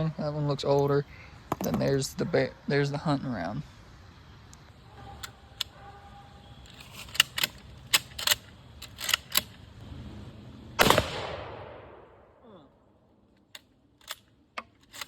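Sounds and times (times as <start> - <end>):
rifle bolt metallic clicks: 6.7 - 9.6, 13.3 - 15.0
rifle shot: 10.8 - 12.4.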